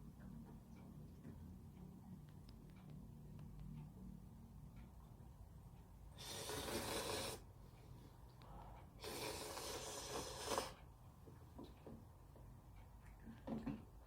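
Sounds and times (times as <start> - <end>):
slurping noodles: 6.2 - 7.4, 9.0 - 10.8.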